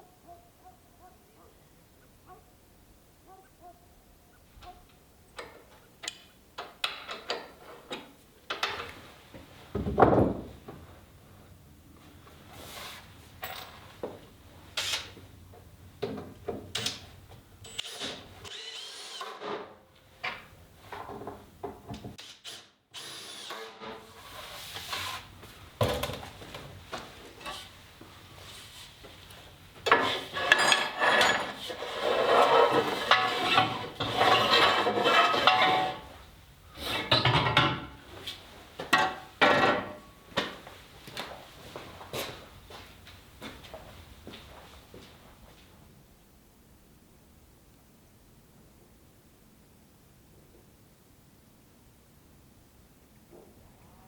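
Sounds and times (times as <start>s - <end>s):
wood and tools knocking and scraping: 4.6s - 11.0s, 12.2s - 22.3s, 23.5s - 36.2s, 36.8s - 44.4s.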